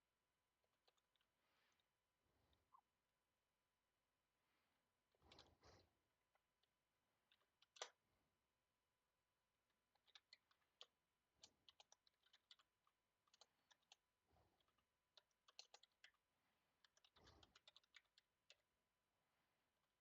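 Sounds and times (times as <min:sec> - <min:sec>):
faint computer keyboard typing: 0:07.3 - 0:08.0, 0:09.9 - 0:18.7.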